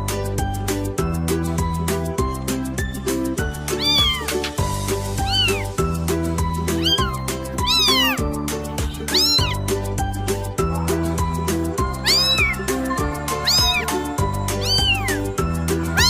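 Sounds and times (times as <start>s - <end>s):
background music with steady beat: 0.0s - 16.0s
cat meowing: 3.7s - 4.5s, 5.2s - 5.8s, 6.7s - 9.6s, 11.9s - 12.7s, 13.3s - 16.0s.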